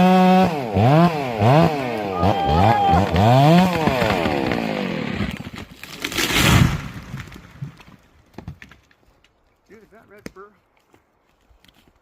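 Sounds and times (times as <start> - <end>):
chainsaw engine winding down: 0.0 - 5.4
short rough crash: 6.0 - 7.3.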